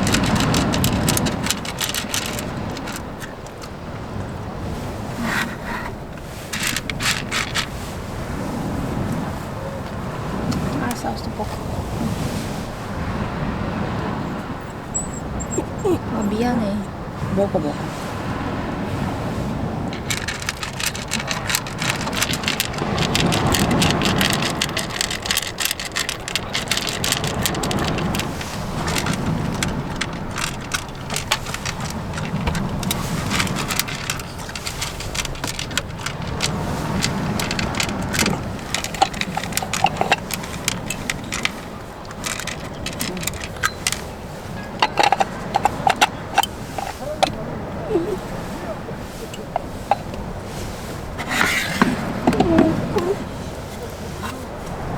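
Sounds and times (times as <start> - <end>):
clicks and light rattles: 0.0 - 4.4, 5.2 - 8.0, 19.9 - 54.8
strong wind gusting: 0.0 - 54.9.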